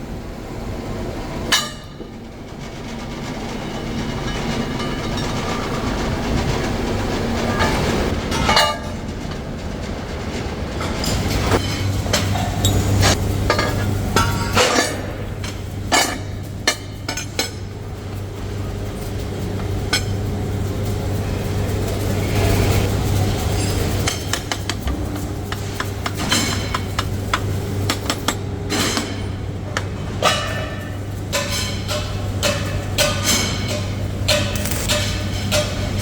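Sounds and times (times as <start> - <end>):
metal tools clinking: 34.5 - 35.2.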